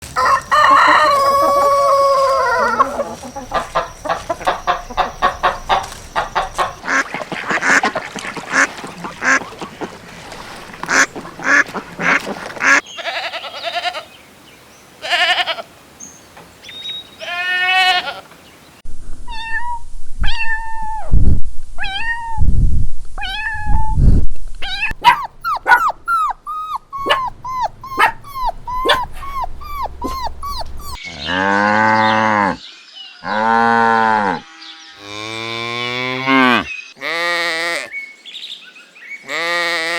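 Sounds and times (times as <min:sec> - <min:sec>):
rooster crowing: 0:00.1 - 0:06.8
ducks quacking: 0:00.6 - 0:12.8, 0:25.0 - 0:31.0.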